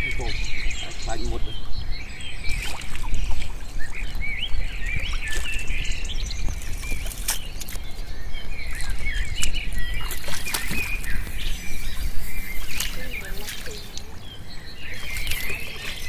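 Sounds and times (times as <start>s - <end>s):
small birds chirping: 0.0s - 16.0s
hands splashing in muddy water: 8.6s - 14.2s, 14.9s - 16.0s.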